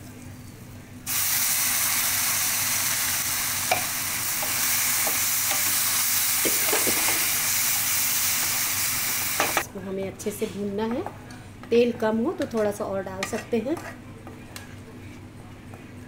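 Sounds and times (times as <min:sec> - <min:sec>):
onion paste sizzling in oil: 0:01.1 - 0:09.6.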